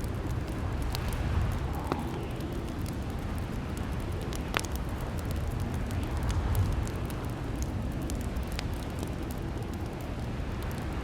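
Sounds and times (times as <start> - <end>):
log fire pops and snaps: 0.0 - 11.0
low fire rumble: 0.0 - 11.0.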